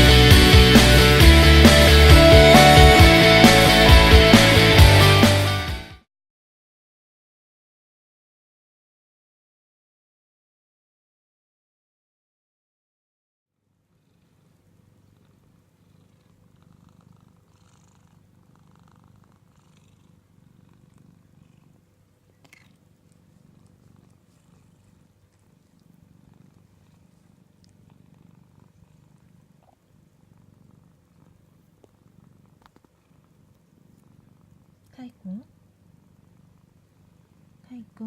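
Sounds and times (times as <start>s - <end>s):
cat purring: 13.6s - 38.0s.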